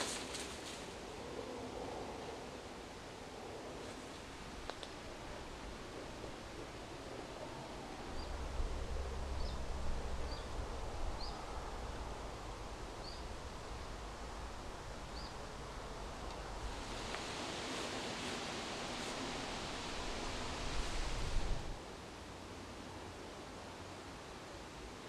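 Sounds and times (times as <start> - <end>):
steady hiss: 0.0 - 25.0
bird chirping: 13.0 - 13.4.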